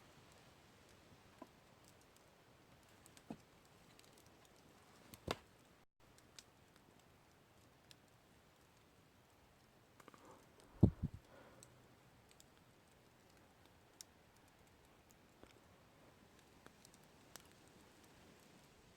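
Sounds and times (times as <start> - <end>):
campfire crackling: 0.1 - 18.9
dull low thumps: 10.8 - 11.2.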